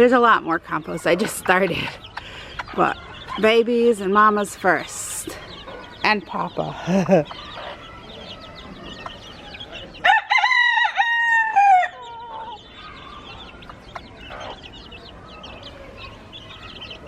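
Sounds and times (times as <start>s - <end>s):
chickens and chicks cheeping and clucking: 0.0s - 17.0s
rooster crowing: 9.8s - 12.6s.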